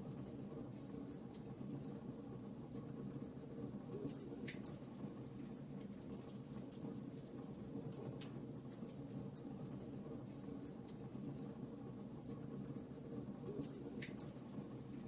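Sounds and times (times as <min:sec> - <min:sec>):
burning logs crackling and popping: 0:12.2 - 0:15.0.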